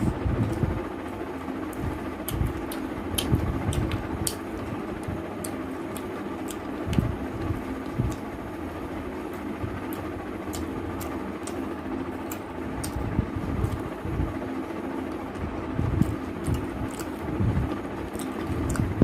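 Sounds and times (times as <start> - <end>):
steady low hum: 0.0 - 19.0
wet chewing and lip-smacking: 1.5 - 8.4, 9.8 - 13.9, 15.1 - 19.0.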